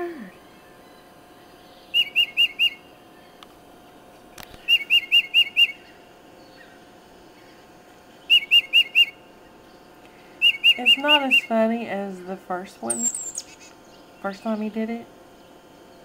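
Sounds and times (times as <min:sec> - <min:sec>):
bird song through laptop speaker: 0:00.5 - 0:03.4, 0:04.5 - 0:06.8, 0:07.4 - 0:09.8, 0:10.4 - 0:11.5, 0:12.8 - 0:14.8.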